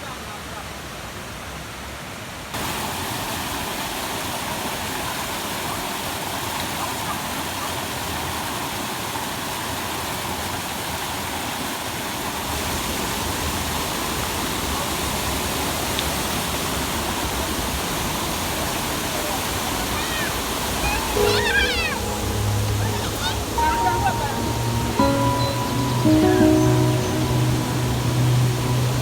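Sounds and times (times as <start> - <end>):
waterfall rushing: 2.6 - 6.6, 18.0 - 29.0.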